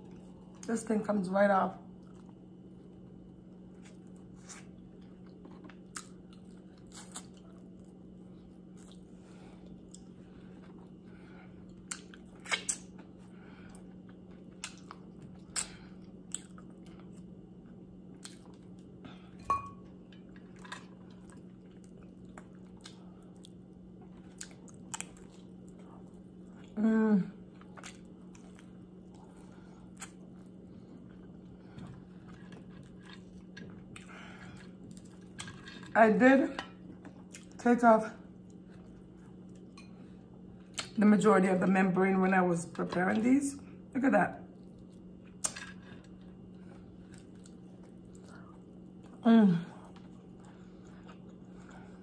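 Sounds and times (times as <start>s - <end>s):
steady low hum: 0.0s - 52.0s
wet chewing: 3.7s - 11.0s, 11.6s - 19.0s, 19.8s - 26.8s, 27.4s - 36.0s, 44.5s - 52.0s.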